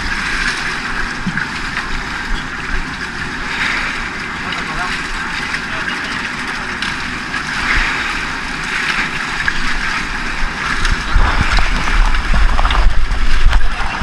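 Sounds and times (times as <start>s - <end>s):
sea hissing: 3.3s - 5.4s
wind buffeting microphone: 9.6s - 14.0s.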